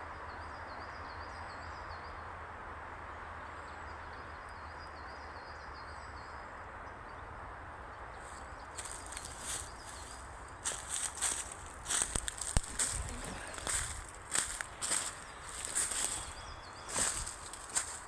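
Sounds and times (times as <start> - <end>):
outdoor background noise: 0.0 - 18.0
small bird chirping: 8.2 - 18.0.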